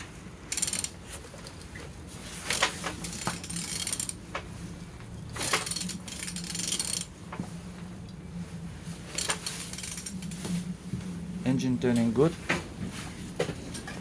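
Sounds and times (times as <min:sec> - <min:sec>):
engine turned over by wrench: 0:00.0 - 0:04.4, 0:05.2 - 0:07.2, 0:09.1 - 0:10.4
steady low hum: 0:00.0 - 0:14.0.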